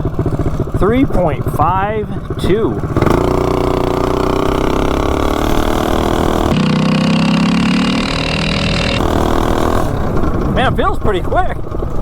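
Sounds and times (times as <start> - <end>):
mini bike engine at full throttle: 0.0 - 12.0.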